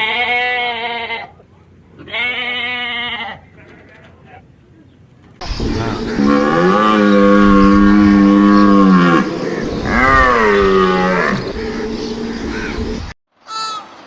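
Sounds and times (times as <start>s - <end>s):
large animal calling: 5.4s - 13.1s.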